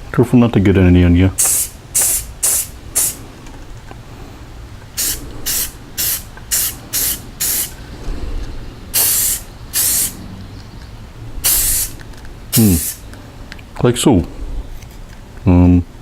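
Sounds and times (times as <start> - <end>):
spray paint can spraying: 1.4 - 3.2, 4.9 - 7.8, 8.9 - 10.2, 11.4 - 13.1.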